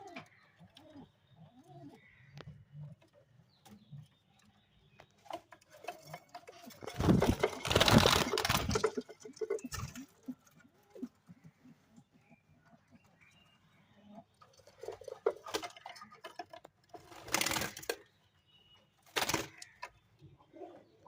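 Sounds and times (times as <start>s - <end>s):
pigeons cooing: 0.0s - 3.9s, 5.6s - 18.1s, 19.4s - 21.0s
loud rustling: 6.8s - 9.0s.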